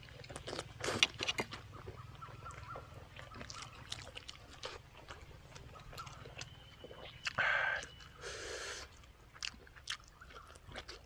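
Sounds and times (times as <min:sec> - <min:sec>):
person chewing: 0:00.0 - 0:11.0.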